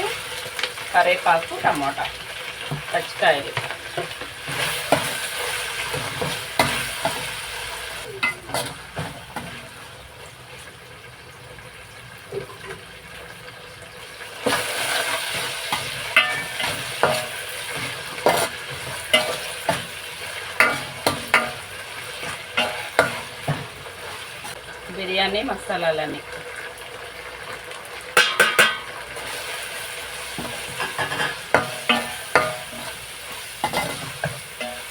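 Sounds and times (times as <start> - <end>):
food sizzling in oil: 0.0 - 34.9
spoon stirring and clicking on pot: 20.6 - 21.6, 30.4 - 33.0.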